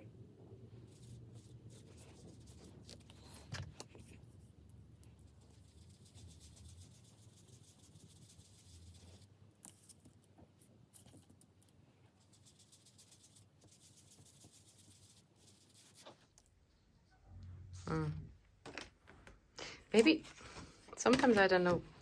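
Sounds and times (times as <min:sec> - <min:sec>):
foam tool rubbing over paper: 0:00.7 - 0:04.4, 0:05.2 - 0:09.3, 0:12.2 - 0:16.2.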